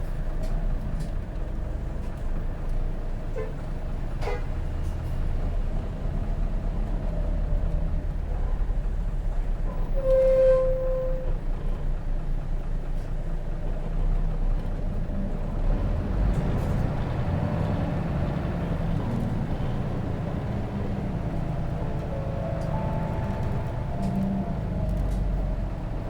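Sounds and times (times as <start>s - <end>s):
diesel bus engine running: 0.0s - 26.0s
short high squealing tone: 9.9s - 11.4s.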